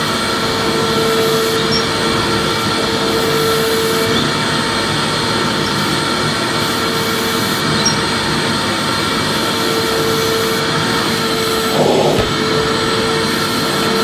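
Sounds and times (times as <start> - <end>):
vacuum cleaner running: 9.6 - 14.0.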